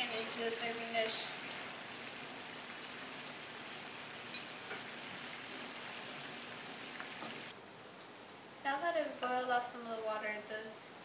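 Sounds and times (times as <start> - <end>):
sauce boiling in a pan: 0.0 - 8.6.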